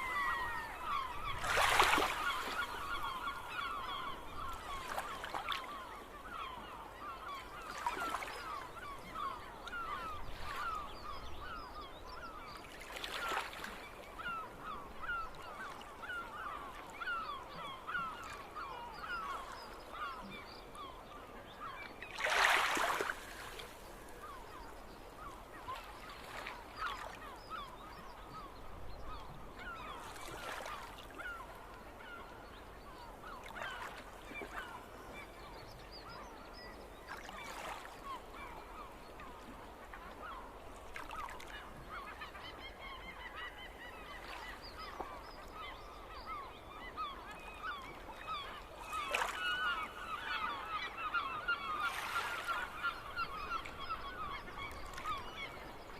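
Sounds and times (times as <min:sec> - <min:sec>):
gulls calling: 0:00.0 - 0:55.9.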